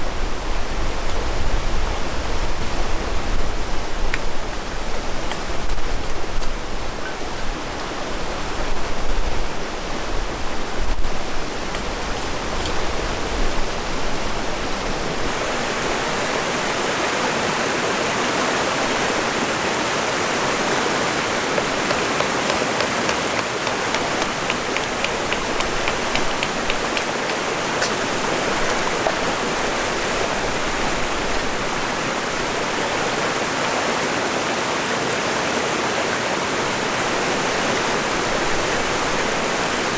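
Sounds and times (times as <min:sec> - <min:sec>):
river water rushing: 0:09.7 - 0:38.2.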